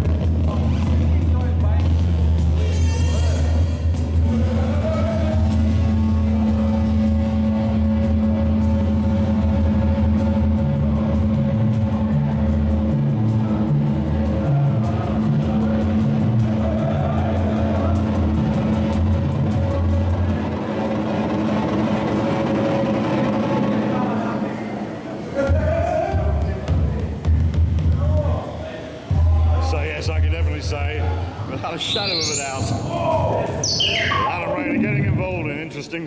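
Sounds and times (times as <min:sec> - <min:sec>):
deep bass drone: 0:00.0 - 0:23.8
held higher synth tone: 0:31.7 - 0:35.4
pulsing bass pattern: 0:31.9 - 0:35.6.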